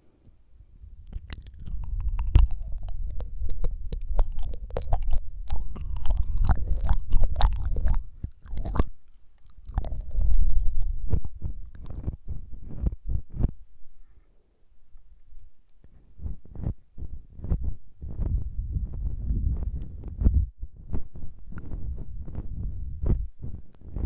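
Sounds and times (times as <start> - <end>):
wet tongue flutters and clicks: 0.8 - 13.5.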